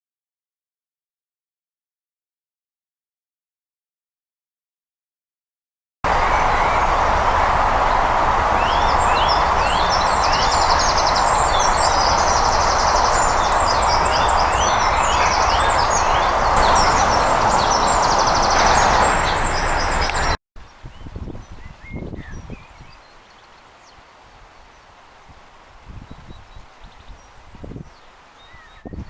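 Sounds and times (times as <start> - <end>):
loud steady rushing noise: 6.1 - 20.4
small birds chirping and trilling: 6.1 - 29.0.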